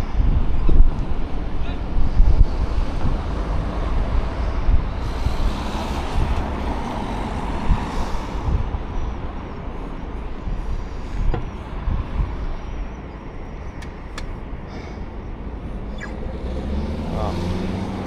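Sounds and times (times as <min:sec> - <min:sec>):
road traffic: 0:00.0 - 0:18.0
wind rumbling on microphone: 0:00.0 - 0:18.0.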